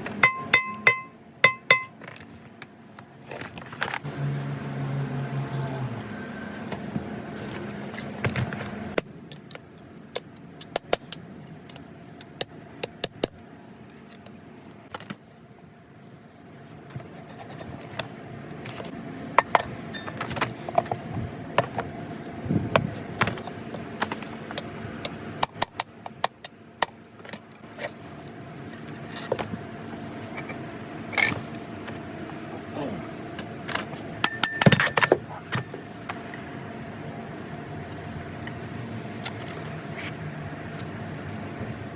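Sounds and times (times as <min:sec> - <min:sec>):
metal tools clinking and scraping: 0:00.0 - 0:02.4, 0:19.4 - 0:21.0, 0:28.6 - 0:29.6, 0:33.3 - 0:36.3.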